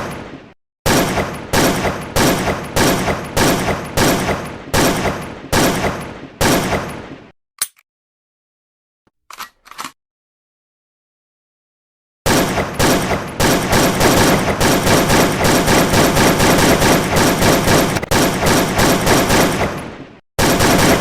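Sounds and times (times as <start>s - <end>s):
gunshots with echoing tails: 12.3s - 21.0s
short click: 17.7s - 18.2s.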